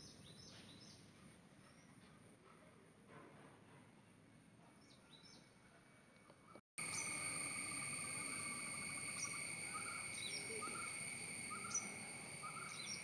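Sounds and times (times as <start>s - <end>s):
bird chirps: 6.8s - 13.0s
high falling bird chirps: 6.8s - 13.0s
high-pitched insect drone: 6.8s - 13.0s.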